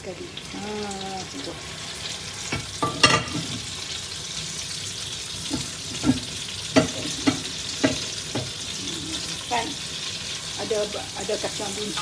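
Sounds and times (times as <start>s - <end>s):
food sizzling in hot oil: 0.0s - 12.0s
metal spatula on wok: 2.0s - 3.6s.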